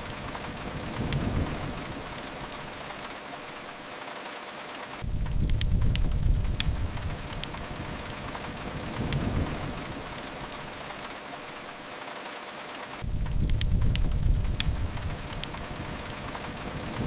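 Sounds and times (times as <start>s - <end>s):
steady rain hiss: 0.0s - 17.0s
wood fire crackling: 0.0s - 17.0s
low rumble: 5.0s - 7.9s, 13.0s - 15.9s.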